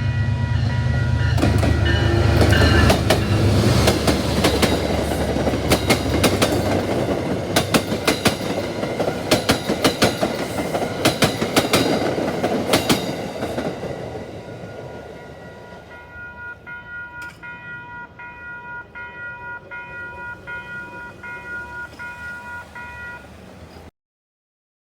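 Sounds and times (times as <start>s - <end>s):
train rumble: 0.0s - 23.9s
train wheels clickety-clack: 0.6s - 23.9s
pulsing ringing tone: 15.2s - 23.3s.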